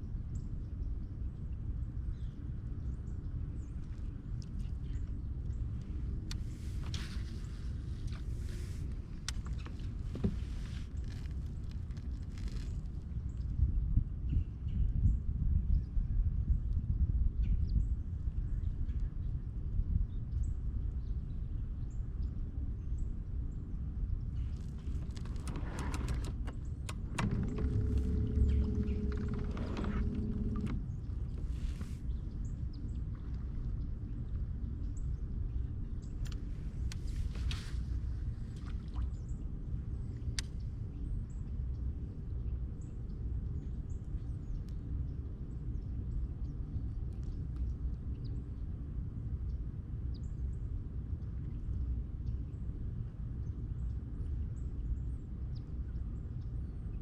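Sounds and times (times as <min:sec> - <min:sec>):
steady low rumble: 0:00.0 - 0:57.0
low rumble: 0:24.1 - 0:42.0
steady hum: 0:24.4 - 0:40.8
sharp clicks and knocks: 0:24.6 - 0:30.9.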